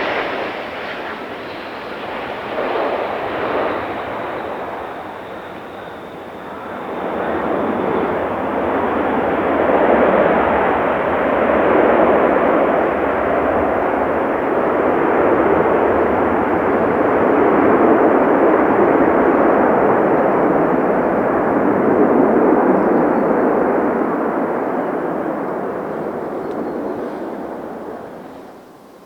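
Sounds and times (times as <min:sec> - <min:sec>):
faint high whine: 0:00.0 - 0:11.0
jet engines roaring: 0:00.0 - 0:28.6.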